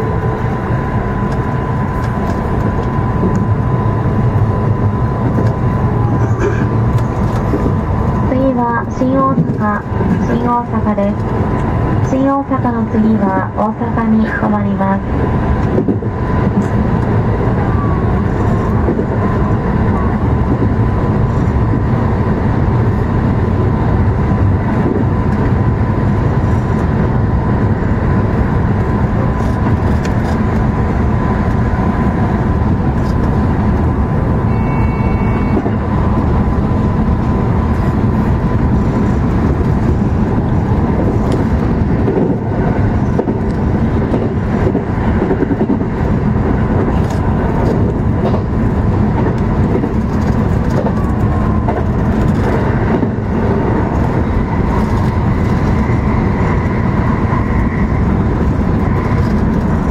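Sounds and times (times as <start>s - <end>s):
train wheels and motor noise: 0.0s - 59.9s
high two-tone beep: 34.5s - 35.7s.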